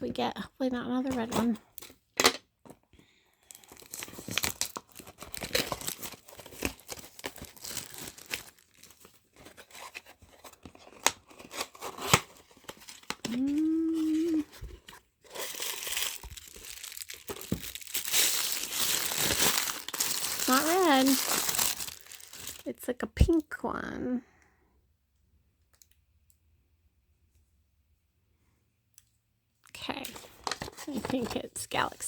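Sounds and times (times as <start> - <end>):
plastic wrapper crinkling and tearing: 3.4 - 22.7, 29.9 - 32.0
person humming: 13.2 - 14.6.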